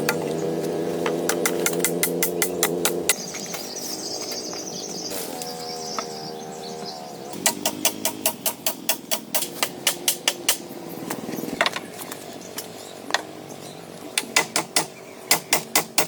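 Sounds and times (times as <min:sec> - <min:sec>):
rapid tool strikes: 0:01.0 - 0:03.7, 0:07.4 - 0:10.6, 0:14.2 - 0:16.0.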